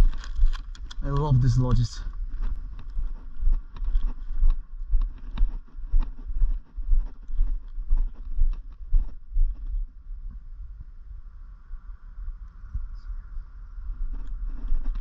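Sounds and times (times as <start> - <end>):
footsteps with low thuds: 0.0 - 10.8, 13.8 - 15.0.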